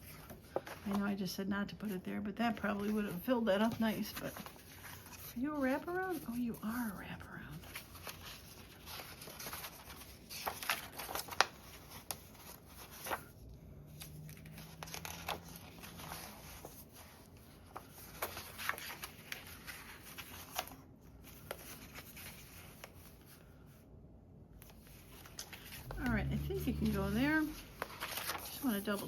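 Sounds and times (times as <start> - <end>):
paper rustling and tapping: 0.0 - 1.0, 7.7 - 13.3, 13.9 - 23.3, 26.8 - 29.0.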